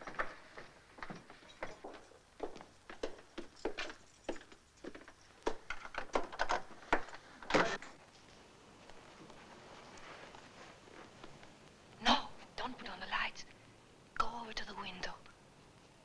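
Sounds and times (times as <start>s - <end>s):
door opening and shutting: 7.4s - 8.0s.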